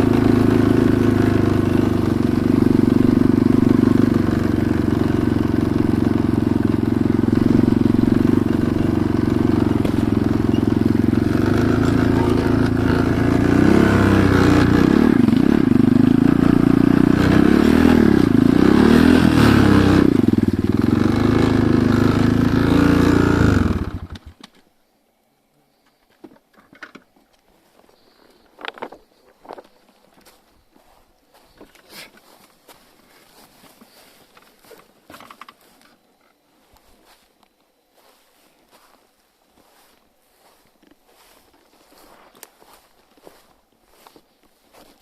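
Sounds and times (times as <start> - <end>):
motorcycle engine running: 0.0 - 24.3.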